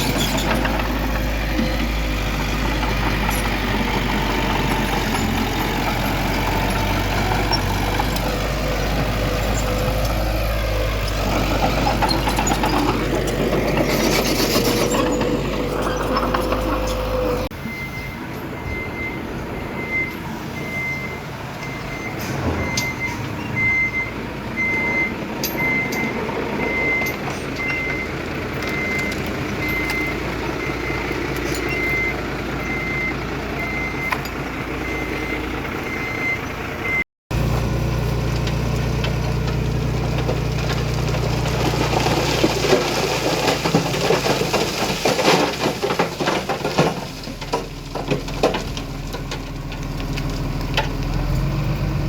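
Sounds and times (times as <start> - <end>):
diesel engine rumble: 0.0 - 52.0
reversing alarm beeping: 17.5 - 34.2, 34.8 - 37.0.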